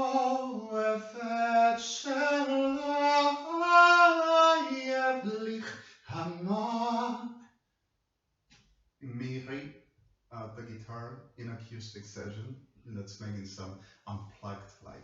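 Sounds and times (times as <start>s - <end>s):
person singing unaccompanied: 0.0s - 7.2s.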